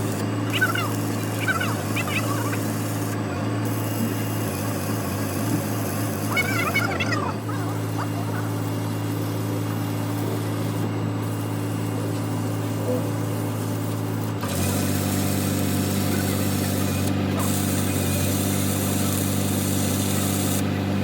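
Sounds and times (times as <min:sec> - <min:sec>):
machine humming: 0:00.0 - 0:21.0.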